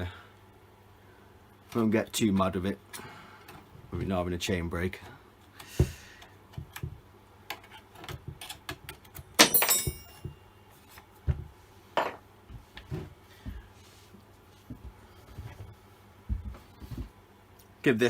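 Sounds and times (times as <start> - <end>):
metallic clatter ringing: 9.4 - 10.2
metal parts and tools knocking: 9.4 - 10.3.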